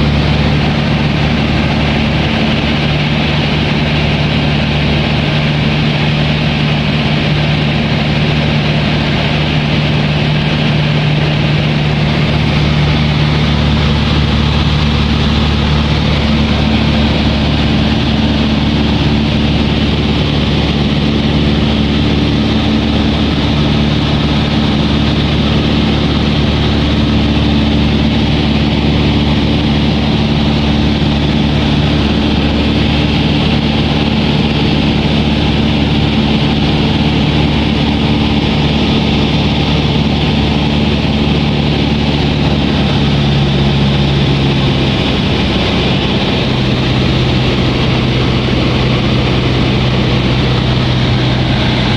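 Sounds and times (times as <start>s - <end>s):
propeller aeroplane engine droning: 0.0s - 51.9s.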